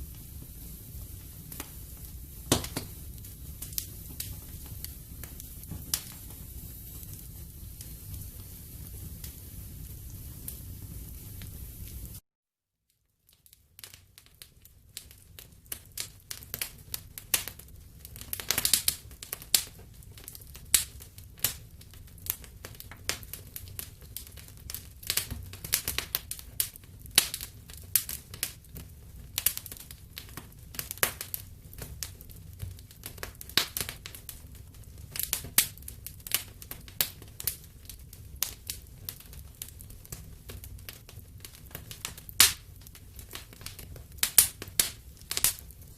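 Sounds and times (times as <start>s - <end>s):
low rumble of flames: 0.0s - 12.2s, 13.7s - 45.9s
wood fire crackling: 0.0s - 12.2s, 13.2s - 45.9s
sharp pops and snaps: 2.5s - 7.1s, 35.1s - 45.7s.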